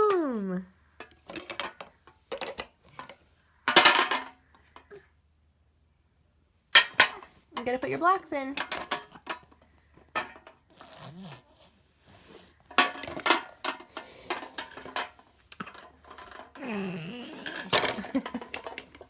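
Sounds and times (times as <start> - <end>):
toy blocks clattering: 12.8 - 19.0.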